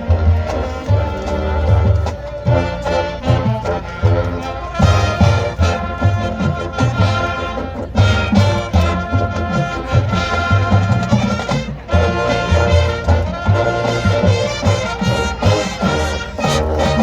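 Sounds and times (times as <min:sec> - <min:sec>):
brass horns: 0:00.0 - 0:17.0
drums beating: 0:00.0 - 0:17.0.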